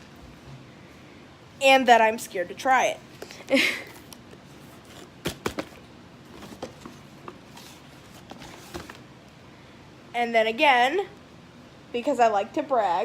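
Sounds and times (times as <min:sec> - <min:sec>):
items knocking and clicking: 0:04.9 - 0:07.5.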